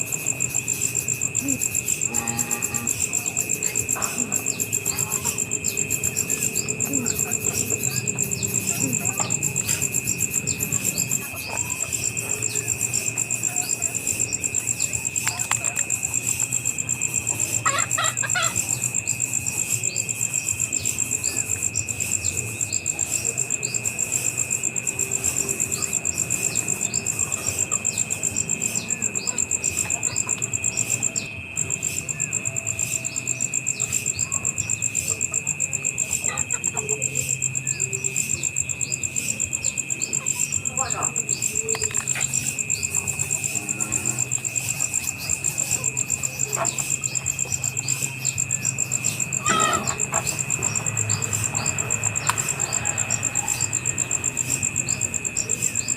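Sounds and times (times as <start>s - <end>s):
insects trilling: 0.0s - 55.9s.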